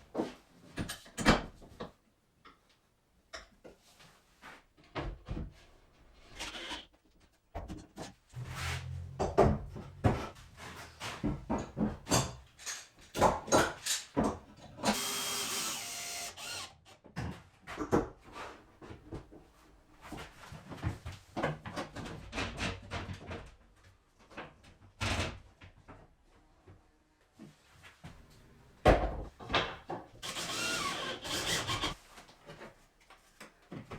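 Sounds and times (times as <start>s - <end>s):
power tool running: 8.4s - 12.4s, 14.8s - 16.7s, 30.2s - 32.0s.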